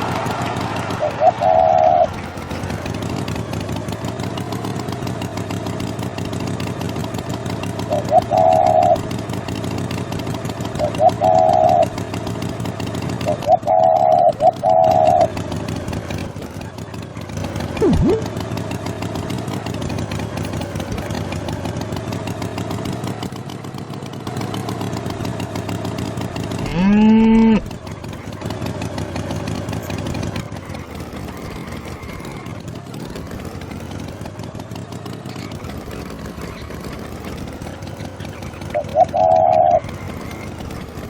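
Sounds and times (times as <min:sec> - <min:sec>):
tractor engine rumble: 0:00.0 - 0:41.0
cartoon cow mooing: 0:17.8 - 0:18.3, 0:26.6 - 0:27.7
short high-pitched call: 0:17.8 - 0:18.3.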